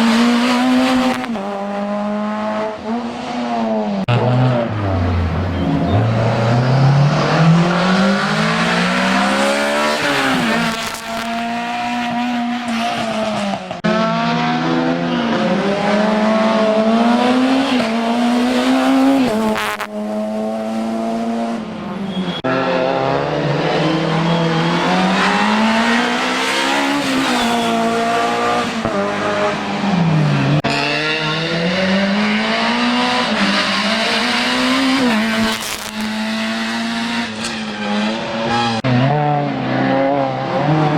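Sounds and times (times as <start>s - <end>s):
racing car engine revving: 0.0s - 21.6s, 30.5s - 40.9s.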